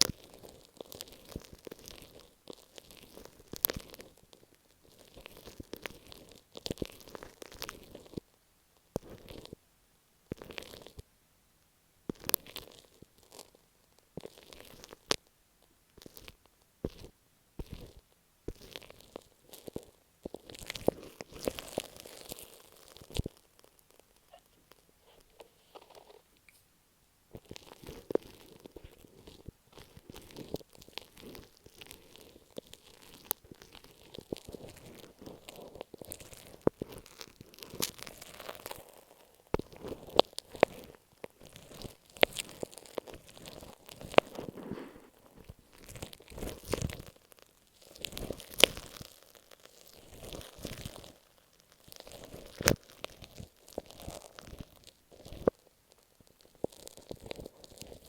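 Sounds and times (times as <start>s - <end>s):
tape crinkling on microphone: 0.0s - 8.2s, 16.0s - 26.6s, 27.3s - 58.0s
tape scratching on microphone: 39.5s - 47.1s.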